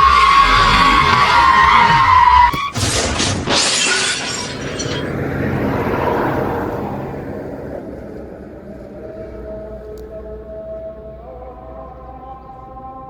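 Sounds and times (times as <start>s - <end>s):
tyre screech: 0.0s - 5.4s
loud crash with shattering: 0.0s - 5.8s.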